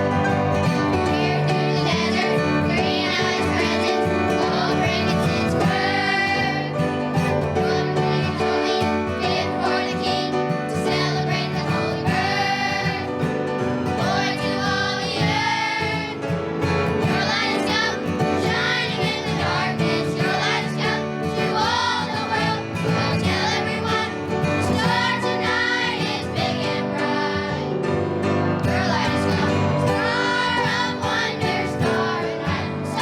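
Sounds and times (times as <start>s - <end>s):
children's choir singing: 0.0s - 33.0s
recorded accompaniment music: 0.0s - 33.0s.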